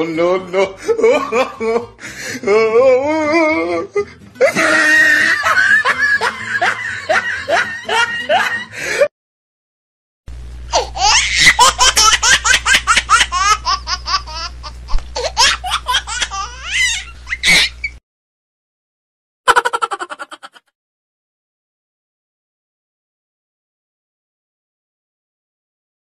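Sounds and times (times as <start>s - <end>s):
pulsing laugh: 0.6s - 2.1s, 4.0s - 9.1s, 10.7s - 17.9s, 19.5s - 20.7s
high-pitched rapid laughing: 4.4s - 9.0s, 10.7s - 17.9s, 19.5s - 20.7s
steady low hum: 10.3s - 18.0s.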